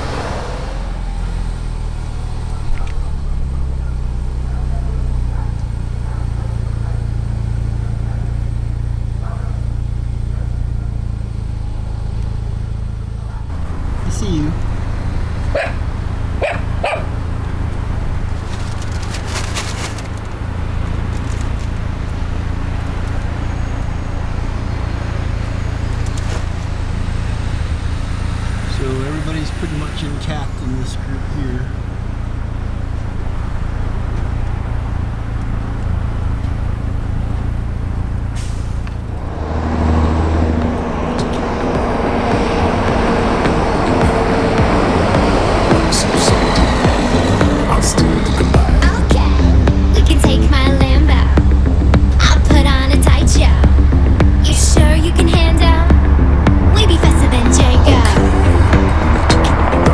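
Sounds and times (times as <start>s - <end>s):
engine humming: 0.0s - 59.9s
road noise rushing: 0.0s - 59.9s
short rising squeaks: 13.6s - 45.7s.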